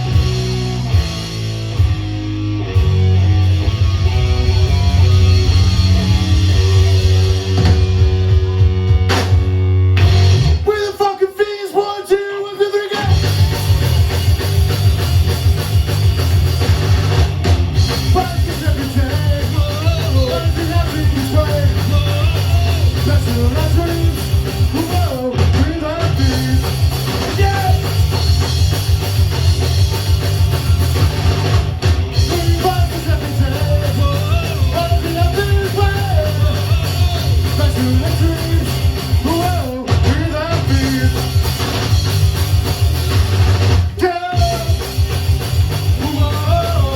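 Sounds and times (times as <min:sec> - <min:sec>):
punk rock band playing: 0:00.0 - 0:46.9
person singing: 0:18.0 - 0:27.9, 0:32.2 - 0:41.3, 0:45.9 - 0:46.9.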